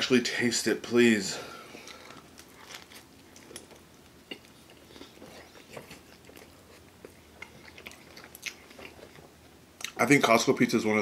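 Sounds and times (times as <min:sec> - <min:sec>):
person chewing: 0:01.7 - 0:10.0.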